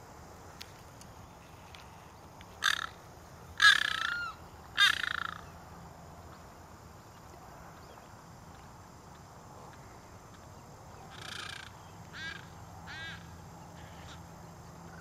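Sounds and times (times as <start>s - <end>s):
large bird harsh rasping calls: 2.6s - 3.0s, 3.6s - 5.5s, 11.1s - 14.2s.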